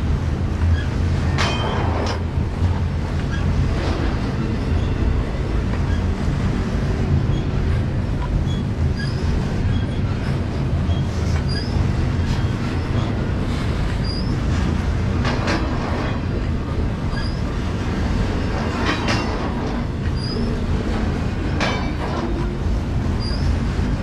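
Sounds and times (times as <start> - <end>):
train wheels rumbling on rail: 0.0 - 24.0
wheels clacking over rail joints: 0.0 - 24.0
high-pitched wheel squeals: 8.5 - 10.0, 10.9 - 11.8, 14.0 - 14.4, 23.2 - 23.5.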